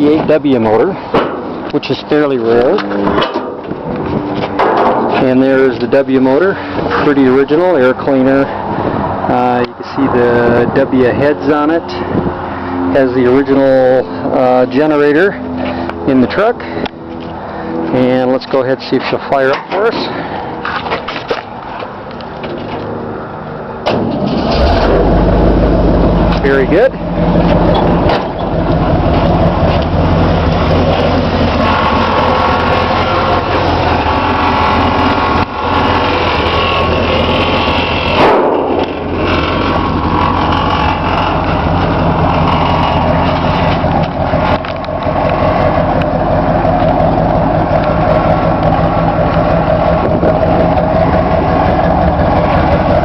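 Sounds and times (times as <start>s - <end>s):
car engine idling: 23.9s - 53.0s.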